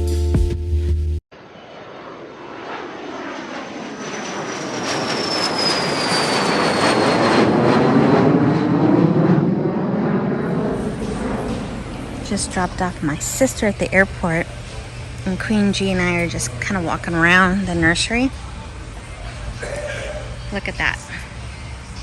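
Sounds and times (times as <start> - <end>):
airplane passing overhead: 1.3 - 22.0
high whine sliding down: 10.2 - 17.9.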